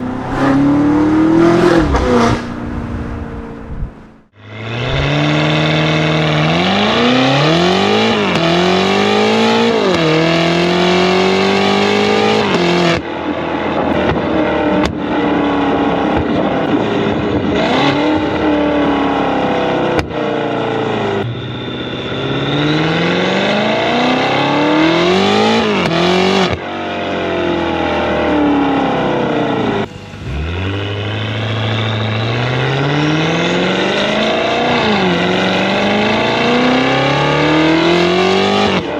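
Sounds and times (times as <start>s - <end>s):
exhaust cracks: 0.0s - 5.3s, 29.8s - 37.9s
car engine accelerating hard: 0.0s - 38.9s.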